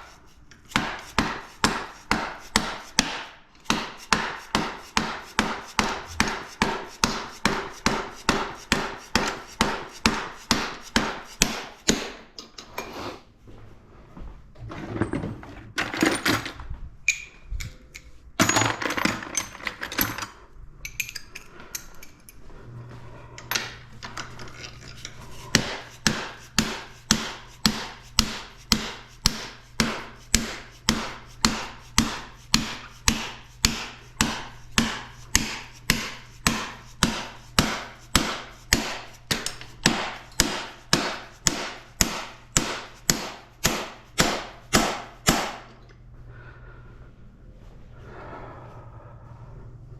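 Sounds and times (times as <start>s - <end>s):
tool clatter and scraping: 4.0s - 13.3s, 14.6s - 41.9s
hammer striking metal part: 25.5s - 45.8s.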